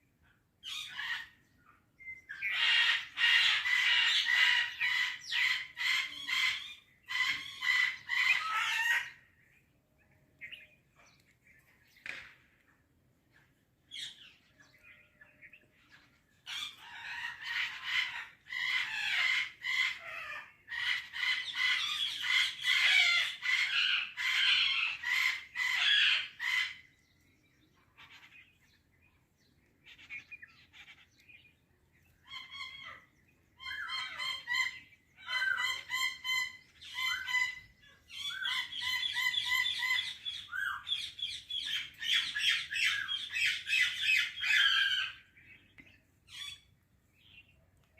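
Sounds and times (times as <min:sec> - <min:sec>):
parrot screeching and chattering: 0:02.4 - 0:09.2, 0:16.5 - 0:26.8, 0:33.6 - 0:45.2.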